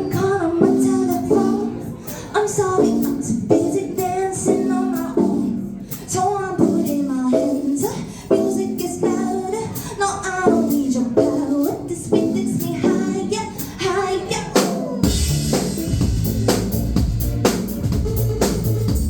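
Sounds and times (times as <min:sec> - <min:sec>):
woman singing: 0:00.0 - 0:15.1
live band music: 0:14.6 - 0:19.0
light percussion beat: 0:15.0 - 0:19.0.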